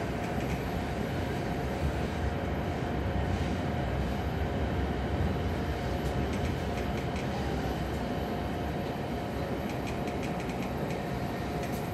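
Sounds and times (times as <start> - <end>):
faint steady whine: 0.0 - 11.9
train wheels rumbling on rail: 0.0 - 11.9
light clicks: 9.6 - 11.9.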